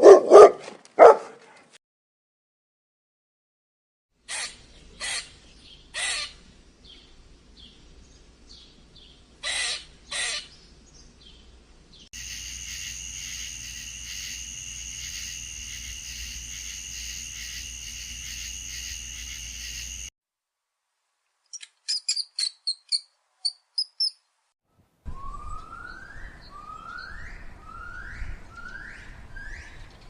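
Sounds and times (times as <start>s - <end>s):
harsh bird calls: 9.4s - 10.6s
high insect-like chirring: 12.2s - 20.1s.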